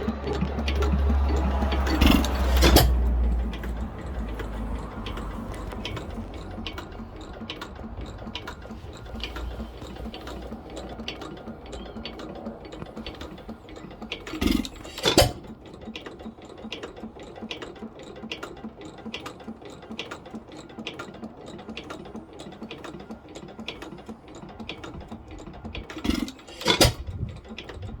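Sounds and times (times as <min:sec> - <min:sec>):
loud engine beats: 0:00.0 - 0:15.6
stationary engine clicking: 0:00.0 - 0:28.0.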